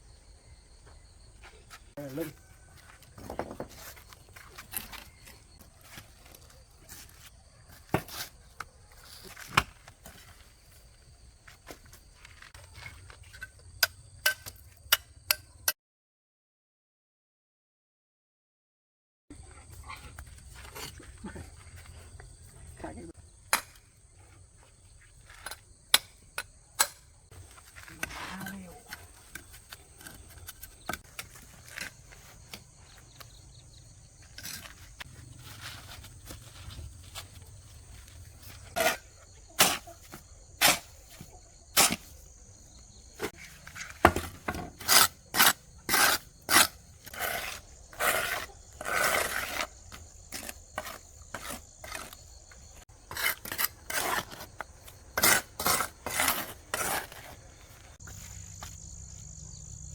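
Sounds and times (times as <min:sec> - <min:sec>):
insect drone: 0:19.4 - 0:59.9
scraping strokes: 0:43.2 - 0:58.4.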